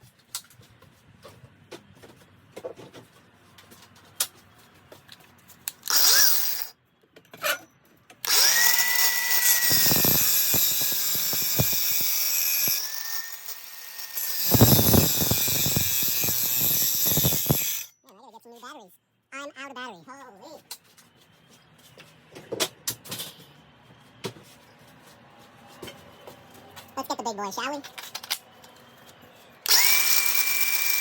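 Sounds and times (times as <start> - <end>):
cordless cutting tool cutting steel pipe: 5.8 - 6.7, 8.2 - 17.9, 29.6 - 31.0.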